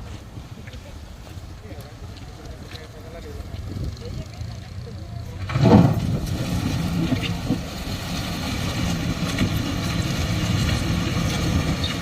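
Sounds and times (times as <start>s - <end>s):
heavy vehicle engine humming: 3.0s - 12.0s.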